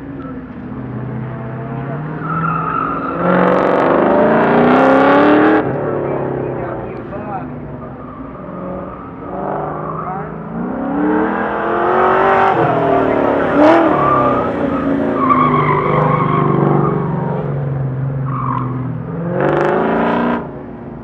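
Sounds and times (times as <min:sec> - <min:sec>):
car engine revving: 0:00.5 - 0:20.7
tyres squealing: 0:02.1 - 0:03.8, 0:11.6 - 0:17.2.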